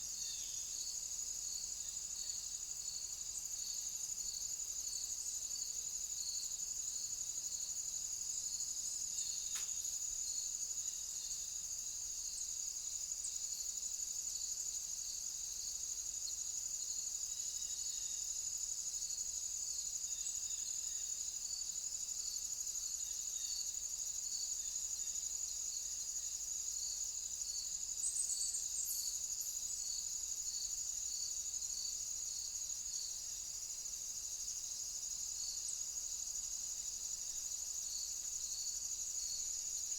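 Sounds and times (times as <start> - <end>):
insect regular chirps: 0.0 - 39.9
faint click: 9.5 - 9.8.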